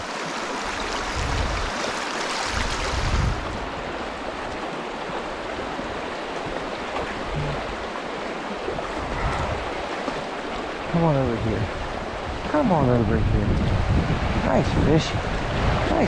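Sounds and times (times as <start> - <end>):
creek water rushing over riffle: 0.0 - 16.0
low bumps: 7.0 - 7.8.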